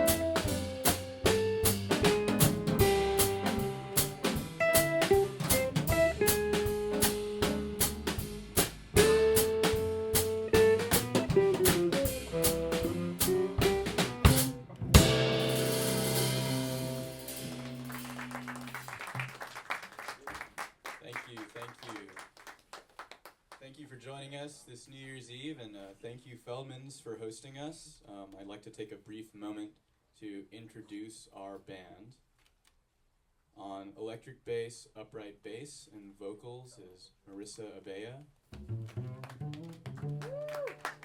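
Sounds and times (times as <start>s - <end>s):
live band playing up-tempo tune: 0.0s - 18.7s.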